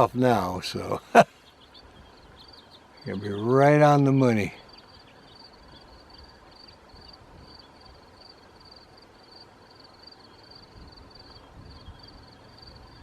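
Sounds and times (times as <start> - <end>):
cricket chirping: 1.1 - 3.2, 3.9 - 13.0
wind rumble: 10.4 - 13.0.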